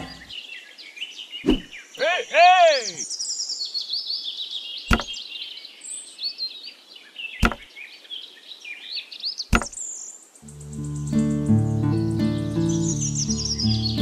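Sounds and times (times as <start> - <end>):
small birds chirping: 0.0 - 14.0
sharp knocks: 4.9 - 5.2, 7.4 - 7.7, 9.5 - 9.8
music: 10.5 - 14.0.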